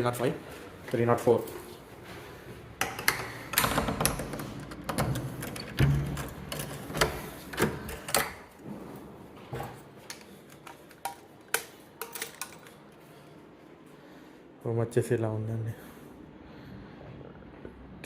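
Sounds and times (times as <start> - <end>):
sharp clicks and knocks: 2.8 - 8.6.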